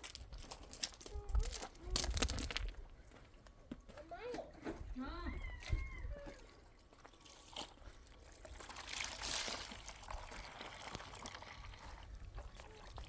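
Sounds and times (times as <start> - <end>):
liquid pouring: 6.8 - 13.0.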